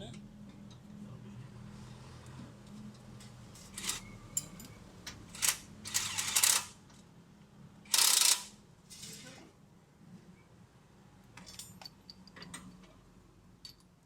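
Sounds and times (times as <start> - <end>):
ratchet wrench clicking: 5.4 - 6.8, 7.9 - 8.5.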